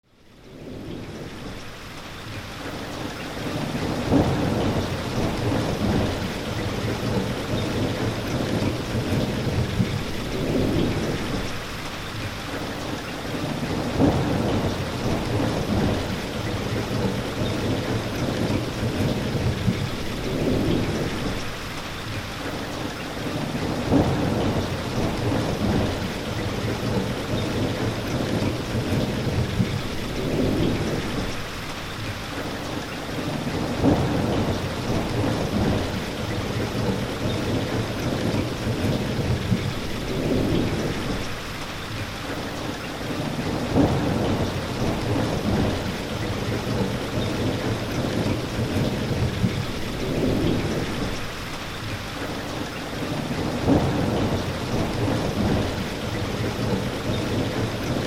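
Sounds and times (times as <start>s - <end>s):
heavy rain: 0.0s - 58.0s
thunder rumbling: 3.5s - 11.9s, 13.4s - 21.8s, 23.3s - 31.6s, 33.2s - 41.6s, 43.2s - 51.6s, 53.1s - 58.0s.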